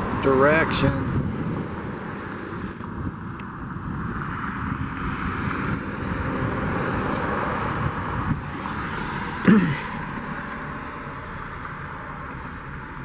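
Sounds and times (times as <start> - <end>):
wind rushing over microphone: 0.0 - 9.4.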